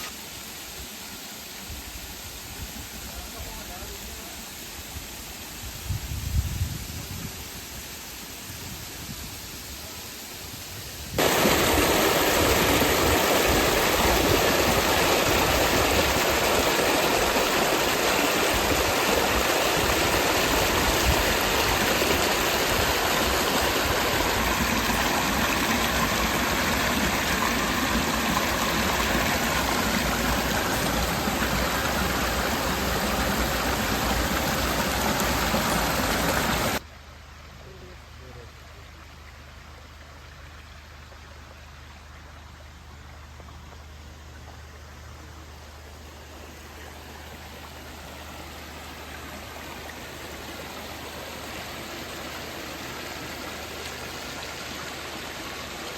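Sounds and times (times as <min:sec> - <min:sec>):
waterfall rushing: 0:11.2 - 0:36.8, 0:46.0 - 0:55.9.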